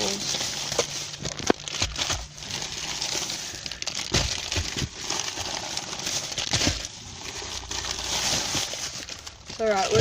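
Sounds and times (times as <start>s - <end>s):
plastic bag rustling and crinkling: 0.0s - 10.0s.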